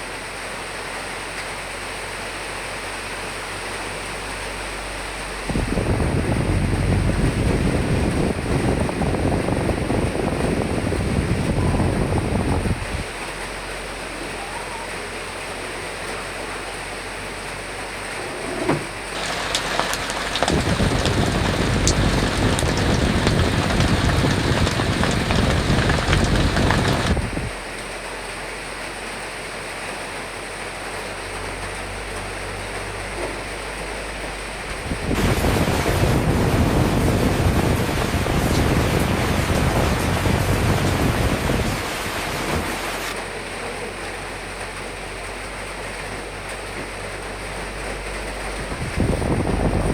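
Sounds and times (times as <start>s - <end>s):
steady rain: 0.0s - 49.9s
gusting wind: 5.4s - 13.2s, 18.7s - 27.6s, 34.5s - 43.2s, 48.2s - 49.9s.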